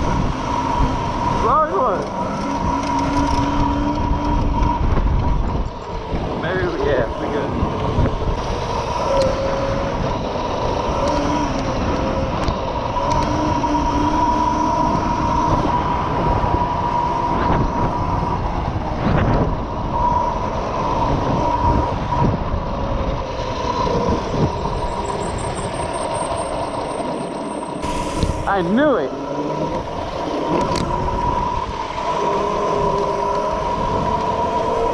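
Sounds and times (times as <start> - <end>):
mini bike engine whining: 0.0 - 34.9.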